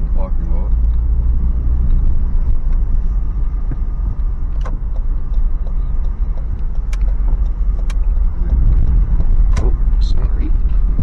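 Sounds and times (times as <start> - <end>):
car engine low rumble: 0.0 - 11.0
sharp clicks: 3.5 - 11.0.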